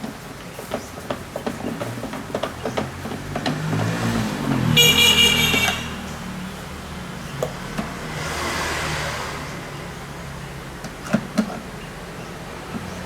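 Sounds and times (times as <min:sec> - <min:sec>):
engine humming: 0:00.0 - 0:13.0
traffic noise: 0:00.0 - 0:13.0
vehicle horn: 0:04.7 - 0:06.2.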